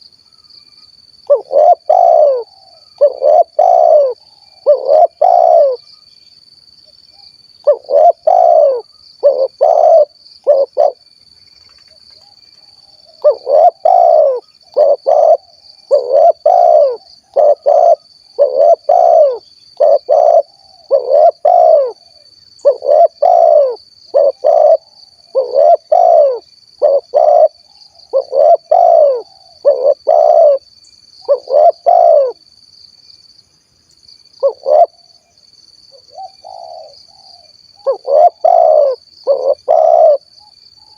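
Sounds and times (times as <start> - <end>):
dove cooing: 1.3 - 5.8, 7.6 - 11.0, 13.1 - 30.6, 31.2 - 32.4, 34.4 - 35.1, 36.0 - 40.9.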